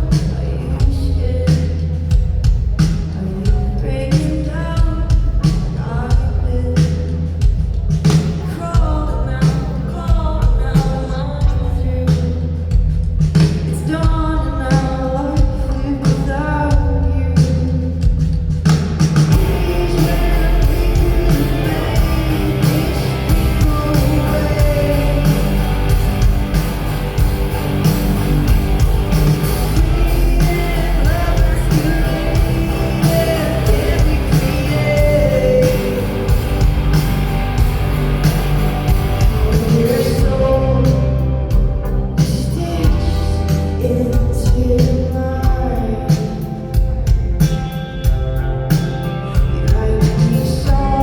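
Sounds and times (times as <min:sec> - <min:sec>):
woman singing: 0:00.0 - 0:02.0, 0:03.1 - 0:07.1, 0:08.2 - 0:12.6, 0:13.5 - 0:18.1, 0:19.4 - 0:26.0, 0:29.7 - 0:36.6, 0:39.2 - 0:41.2, 0:42.3 - 0:46.8, 0:49.6 - 0:51.0
live rock band: 0:00.0 - 0:51.0.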